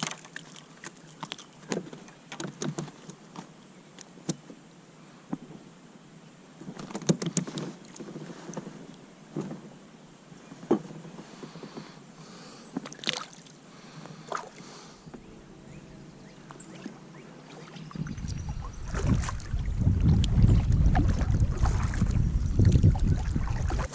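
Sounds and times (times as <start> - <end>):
paddle splashing water: 0.0 - 3.2, 10.7 - 15.3, 16.3 - 23.9.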